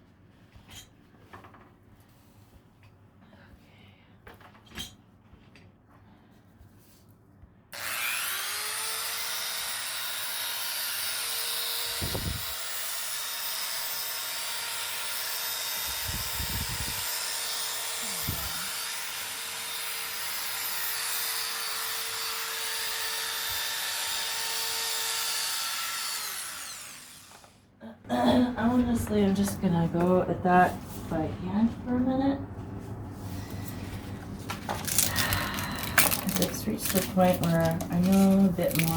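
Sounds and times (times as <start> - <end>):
electric sander sanding wood: 7.8 - 27.5.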